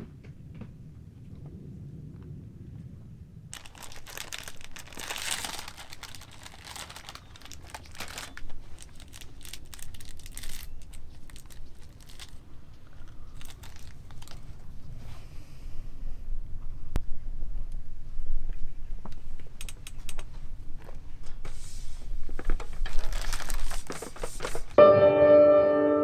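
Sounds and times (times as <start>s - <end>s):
packaging crinkling and rustling: 3.5s - 15.2s, 19.6s - 24.8s
packaging tearing: 3.6s - 14.8s, 22.6s - 24.7s.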